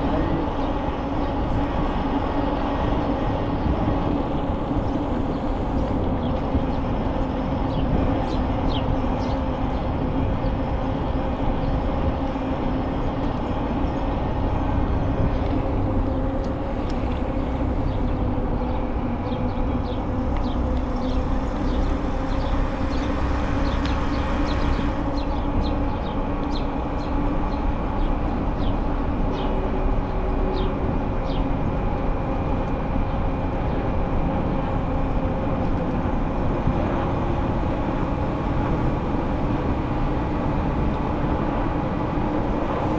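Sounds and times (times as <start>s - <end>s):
bicycle rolling on path: 12.0s - 18.6s.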